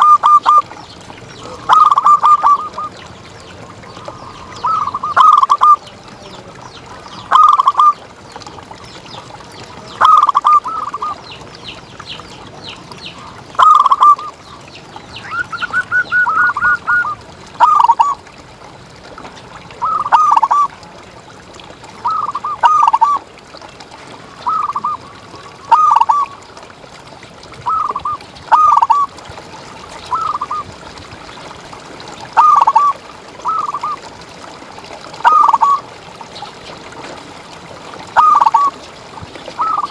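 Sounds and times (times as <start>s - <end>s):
dove cooing: 0.0s - 0.7s, 1.4s - 3.0s, 4.0s - 5.9s, 7.3s - 8.0s, 10.0s - 11.2s, 13.2s - 14.3s, 15.2s - 18.2s, 22.0s - 23.2s, 25.7s - 26.4s, 27.6s - 29.1s, 32.4s - 34.0s, 35.2s - 35.8s, 38.2s - 38.8s.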